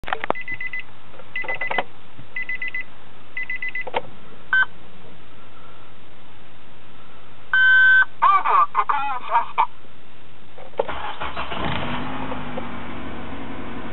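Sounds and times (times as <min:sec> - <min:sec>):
car warning chime beeping: 0:00.4 - 0:00.8, 0:02.4 - 0:03.9, 0:07.6 - 0:08.1
engine cranking: 0:10.8 - 0:12.6.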